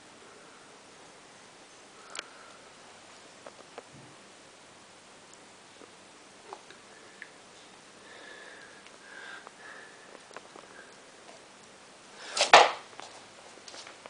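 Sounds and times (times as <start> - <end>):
breathy rush of air: 7.9 - 11.2.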